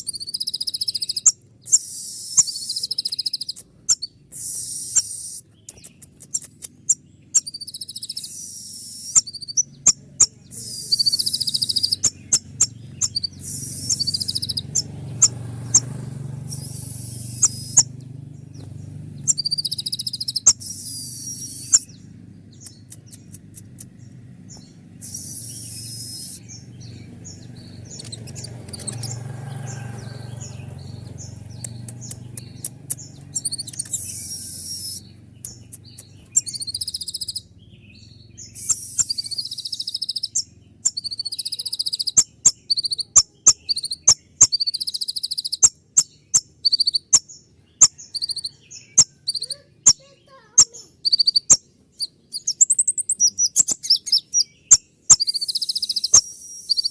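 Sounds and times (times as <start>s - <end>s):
sunbird chirping: 0.0s - 56.9s.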